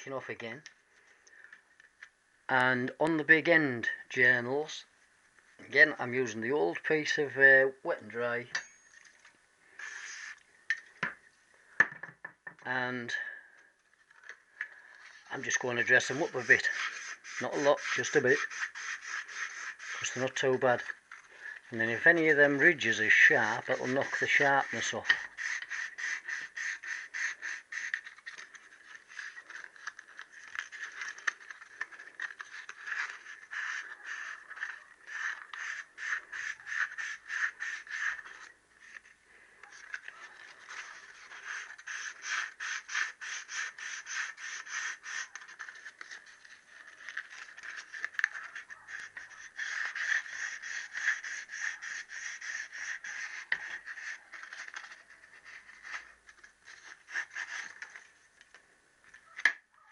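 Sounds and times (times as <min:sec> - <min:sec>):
abrasive paper rubbing on metal: 0:09.6 - 0:10.4, 0:14.9 - 0:58.3.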